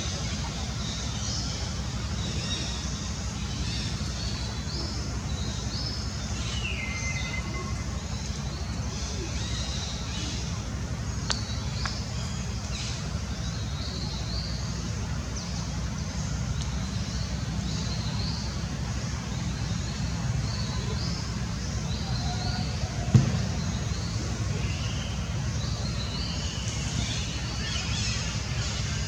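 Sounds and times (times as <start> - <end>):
steady low rumble: 0.0 - 29.0
faint click: 11.2 - 12.0
sharp thump: 23.1 - 23.8.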